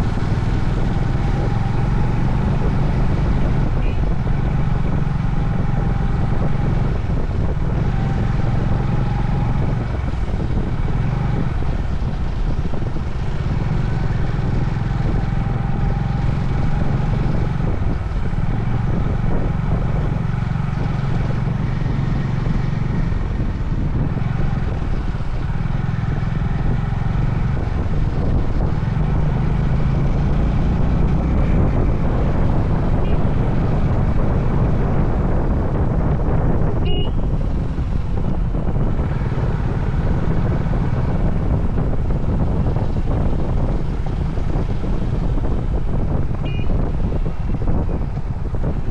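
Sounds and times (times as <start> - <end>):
motorcycle engine running: 0.0 - 48.9
road and wind noise: 0.0 - 48.9.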